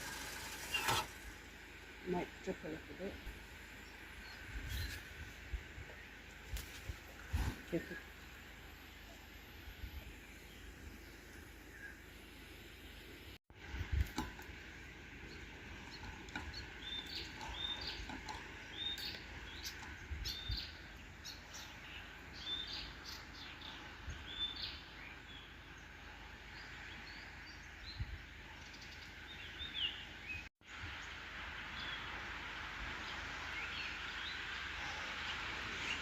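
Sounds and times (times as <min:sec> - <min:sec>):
birds chirping: 0:14.0 - 0:32.2
background hiss: 0:29.2 - 0:36.0.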